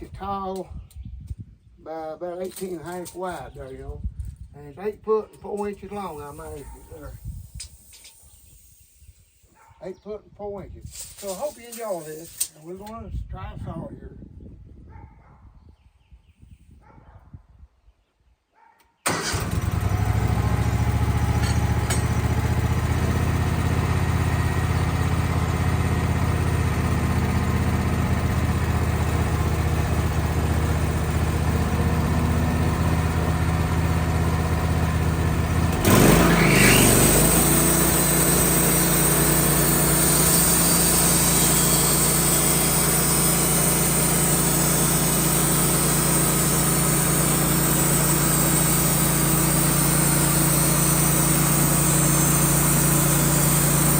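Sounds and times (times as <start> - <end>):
sawmill engine running: 19.1 - 53.9.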